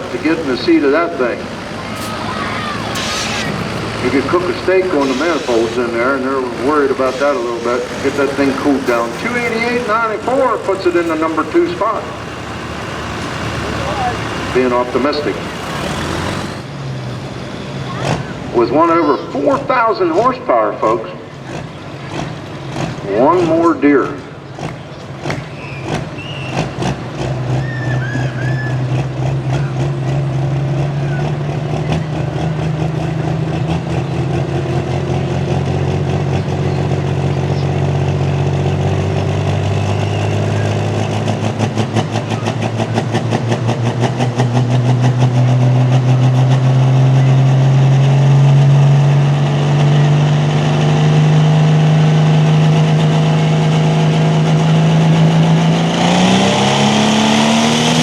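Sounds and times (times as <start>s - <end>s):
tractor engine rumbling: 0.0s - 58.0s.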